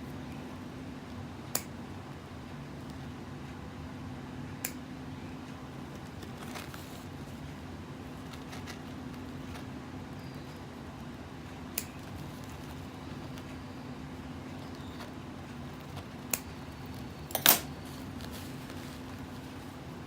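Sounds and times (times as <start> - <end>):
low room tone hum: 0.0 - 20.0.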